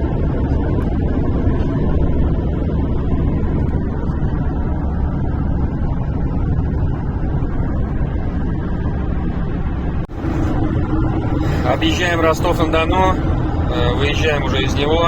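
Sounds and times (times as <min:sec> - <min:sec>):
tyres and engine rumble: 0:00.0 - 0:15.0.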